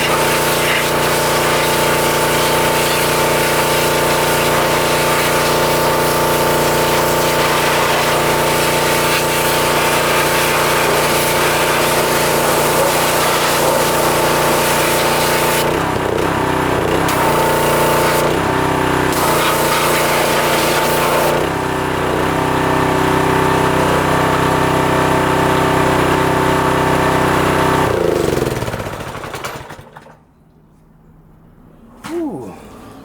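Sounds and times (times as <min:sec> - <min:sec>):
high hiss of water spray: 0:00.0 - 0:15.7
pressure washer engine running: 0:00.0 - 0:30.2.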